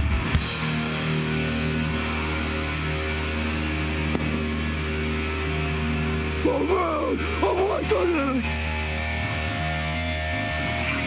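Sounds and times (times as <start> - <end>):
drum hits: 4.2 - 4.9.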